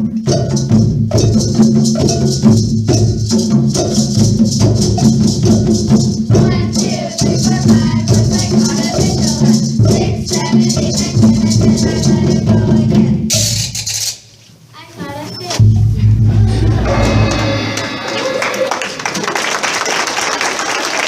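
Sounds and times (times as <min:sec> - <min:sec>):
percussion ensemble playing: 0:00.0 - 0:14.4, 0:15.5 - 0:21.0
shakers: 0:00.1 - 0:14.4
sustained low notes: 0:15.6 - 0:19.2.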